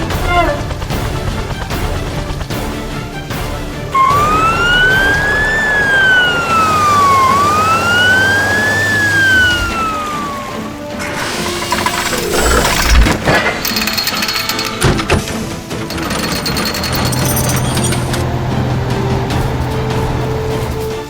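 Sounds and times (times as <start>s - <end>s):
background music: 0.0s - 21.0s
wailing emergency siren: 3.9s - 12.3s.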